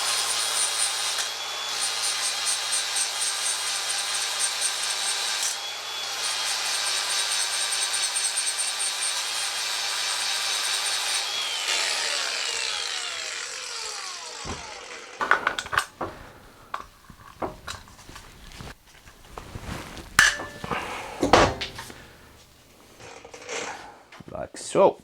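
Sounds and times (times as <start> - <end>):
grinder grinding metal: 10.8 - 23.0
metal parts knocking and clanking: 15.2 - 23.0.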